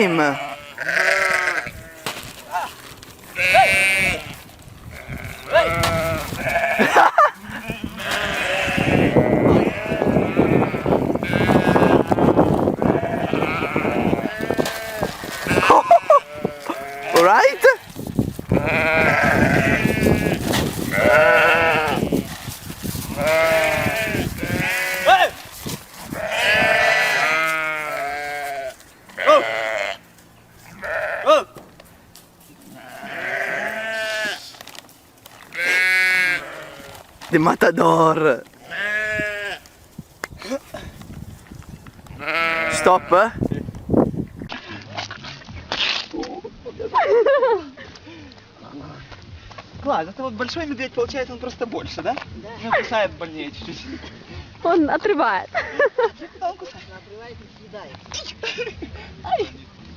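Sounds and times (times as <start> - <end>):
bleating: 0.0 - 17.9, 18.5 - 31.6, 32.6 - 34.6, 35.4 - 37.2, 38.6 - 39.7, 42.1 - 43.4.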